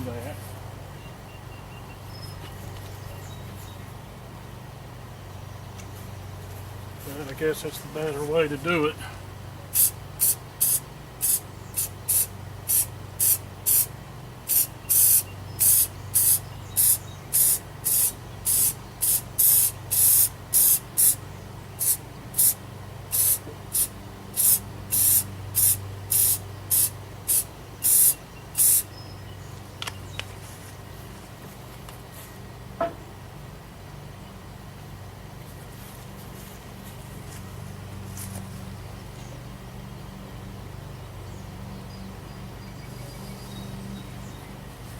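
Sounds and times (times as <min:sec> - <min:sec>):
aerosol can hissing bursts: 0:09.8 - 0:13.9, 0:14.5 - 0:21.2, 0:21.8 - 0:28.9.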